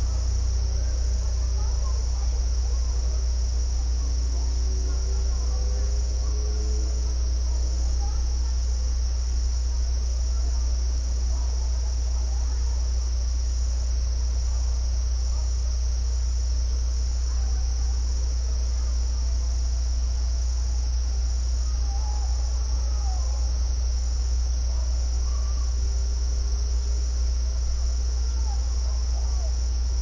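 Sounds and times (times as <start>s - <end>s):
faint wavering calls: 0.0s - 8.8s, 21.3s - 23.6s
insects chirping: 0.0s - 30.0s.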